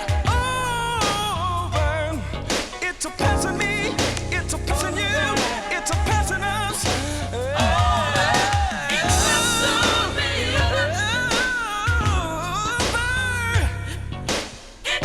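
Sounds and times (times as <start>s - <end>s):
band with deep bass: 0.0s - 15.0s
person singing wordless runs: 2.8s - 14.0s.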